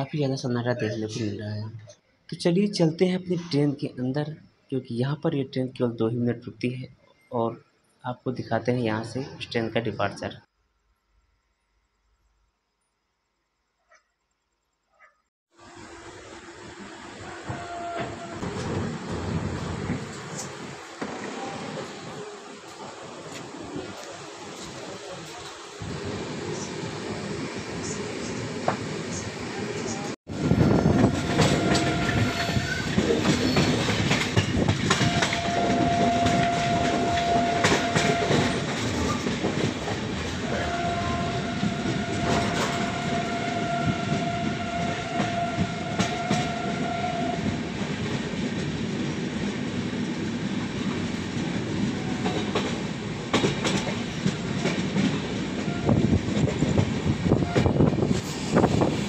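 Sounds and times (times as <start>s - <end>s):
train horn blast: 17.2s - 18.5s, 30.4s - 32.9s, 34.9s - 38.8s, 40.4s - 47.6s, 55.6s - 56.2s
train wheels clattering over rail joints: 30.6s - 40.5s, 47.5s - 59.0s.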